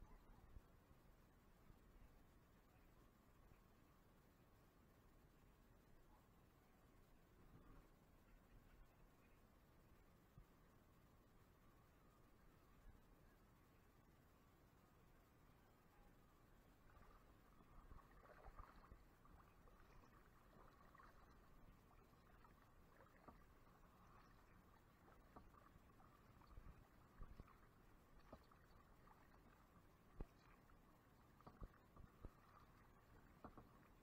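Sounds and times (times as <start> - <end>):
kayak paddle in water: 16.2 - 34.0.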